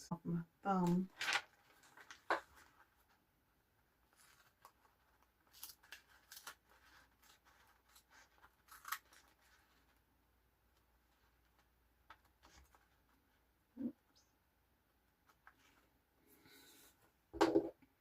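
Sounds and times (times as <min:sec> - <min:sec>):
tape and paper crackling: 0:00.7 - 0:03.2, 0:04.0 - 0:10.1, 0:10.7 - 0:13.4.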